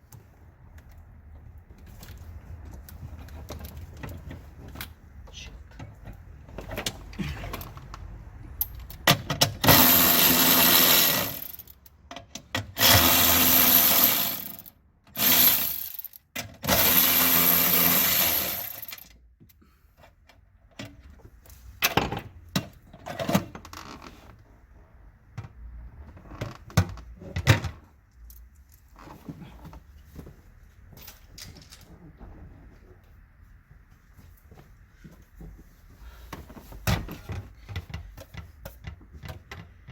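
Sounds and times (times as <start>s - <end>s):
power tool running: 9.7s - 11.6s, 12.8s - 16.0s, 16.7s - 18.9s.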